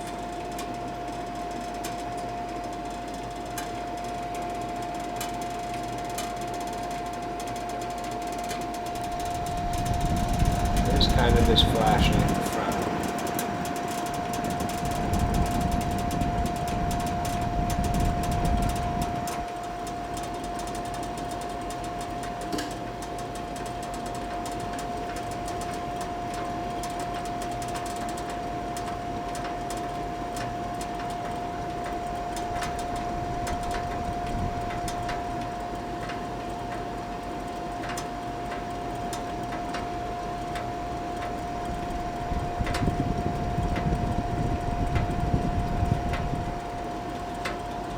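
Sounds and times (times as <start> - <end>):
kerosene heater humming: 0.0 - 47.9.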